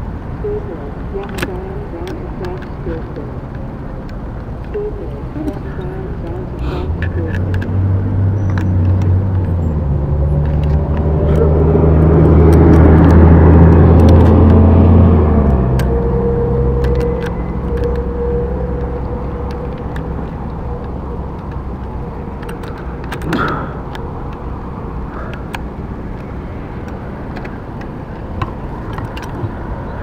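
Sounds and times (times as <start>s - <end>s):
small engine rumbling: 0.0s - 30.0s.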